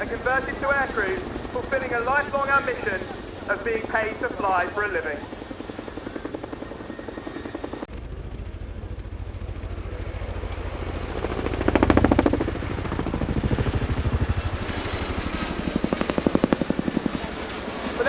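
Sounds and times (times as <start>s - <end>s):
helicopter rotor blade slap: 0.0s - 18.0s.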